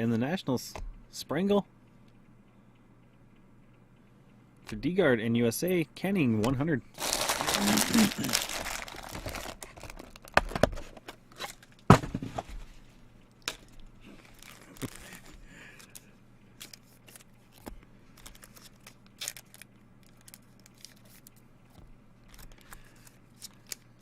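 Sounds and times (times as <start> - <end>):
packaging crinkling and tearing: 7.0 - 11.8, 14.2 - 15.3, 16.6 - 21.4.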